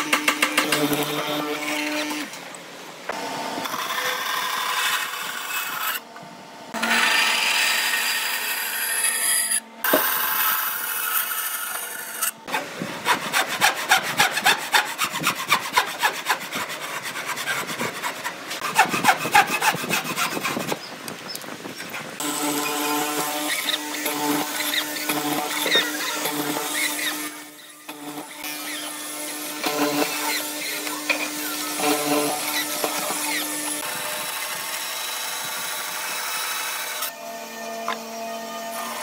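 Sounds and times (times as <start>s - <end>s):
hand tool scraping wood: 12.5s - 21.0s, 21.6s - 33.8s.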